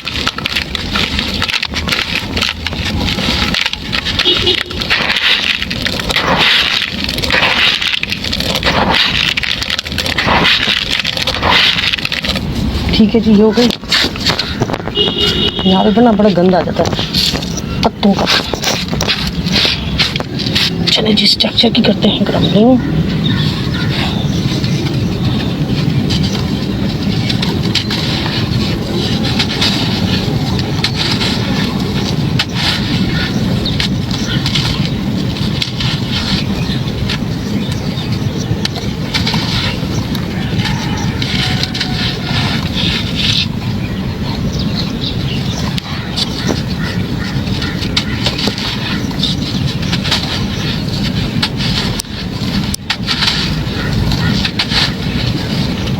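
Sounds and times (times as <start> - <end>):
sharp breaks: 0.0 - 12.9
steady low rumble: 0.0 - 55.9
stony chunks crunching by hand: 0.0 - 55.9.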